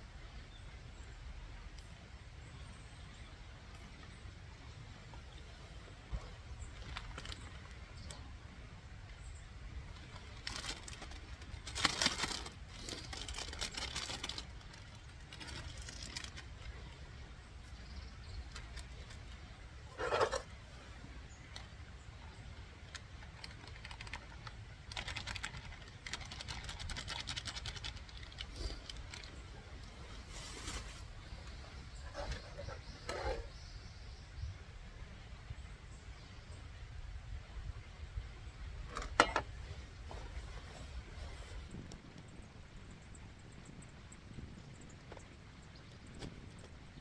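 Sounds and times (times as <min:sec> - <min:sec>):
gear rustling and clattering: 0:10.0 - 0:17.0, 0:18.5 - 0:20.5, 0:22.9 - 0:33.5.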